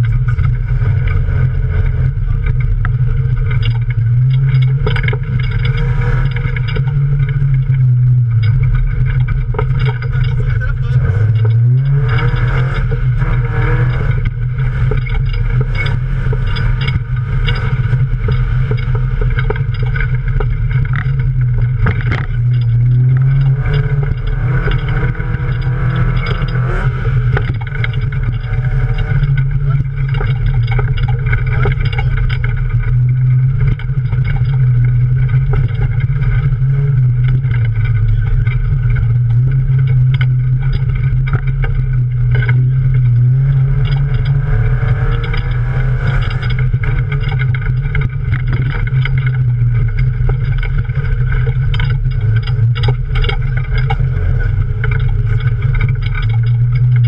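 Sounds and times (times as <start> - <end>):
car body knocks and rattles: 0.0 - 57.0
car engine droning: 0.0 - 57.0.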